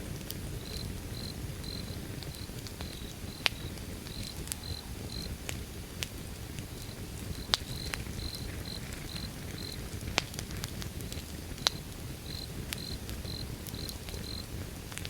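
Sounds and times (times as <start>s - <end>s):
wood fire crackling: 0.0s - 15.0s
cricket chirping: 0.6s - 5.4s, 6.7s - 9.9s, 12.2s - 14.5s.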